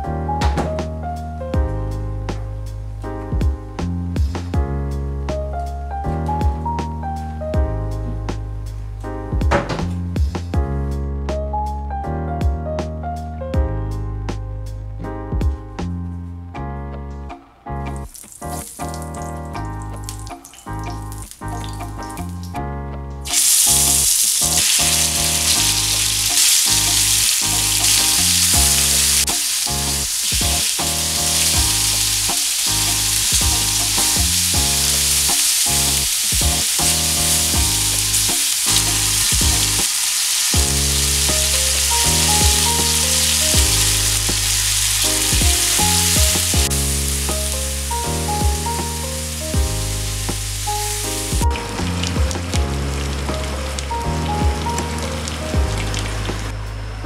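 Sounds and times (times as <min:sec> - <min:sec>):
background music: 0:00.0 - 0:57.0
skewers sizzling in oil: 0:18.0 - 0:22.5, 0:23.3 - 0:56.6.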